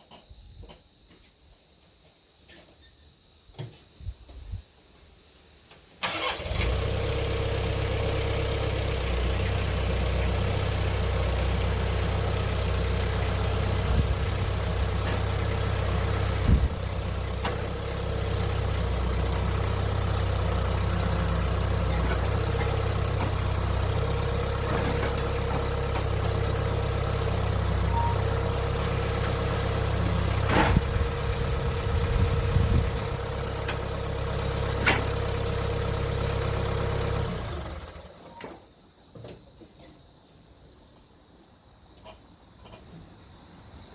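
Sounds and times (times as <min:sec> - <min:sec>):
tractor engine idling: 0:06.0 - 0:38.4.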